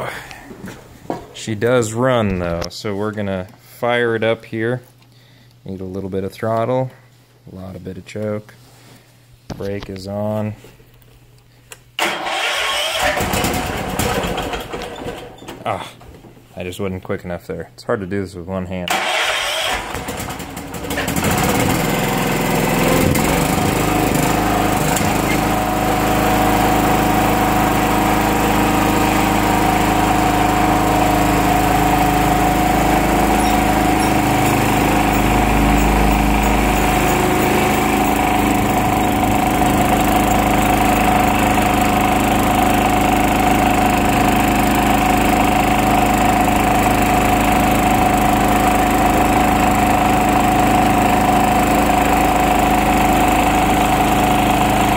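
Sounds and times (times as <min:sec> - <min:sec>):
garden tractor engine running: 0:12.0 - 0:15.2, 0:18.9 - 0:54.9
engine cranking: 0:12.0 - 0:15.4, 0:18.9 - 0:22.0, 0:31.0 - 0:43.5.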